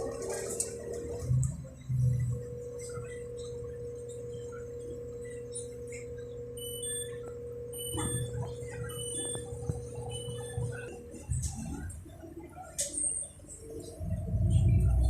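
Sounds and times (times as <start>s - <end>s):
mid-pitched hum: 0.0s - 15.0s
train rumble: 8.0s - 15.0s.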